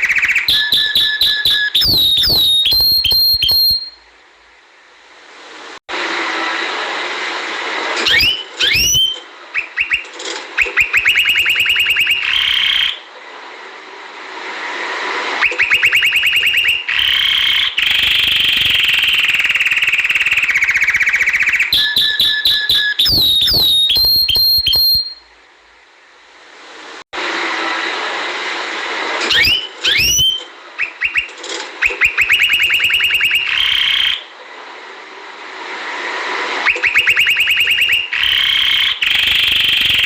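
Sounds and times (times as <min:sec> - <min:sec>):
canary singing: 0:00.0 - 0:04.0, 0:08.0 - 0:10.0, 0:15.4 - 0:25.2, 0:29.3 - 0:34.3.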